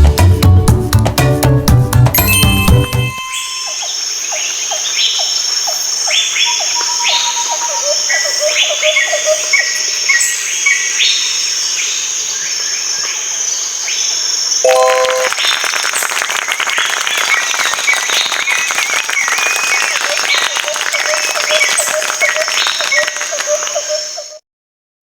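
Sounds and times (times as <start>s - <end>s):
pitched tone: 2.2s - 4.0s, 14.6s - 15.4s
birds chirping: 3.1s - 10.3s, 16.8s - 24.4s.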